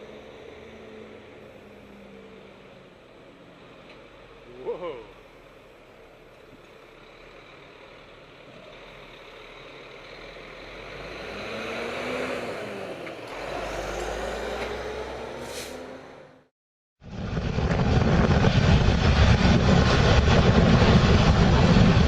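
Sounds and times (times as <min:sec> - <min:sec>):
truck driving past: 0:00.0 - 0:04.7, 0:05.5 - 0:16.5
deep low rumble: 0:17.0 - 0:22.0.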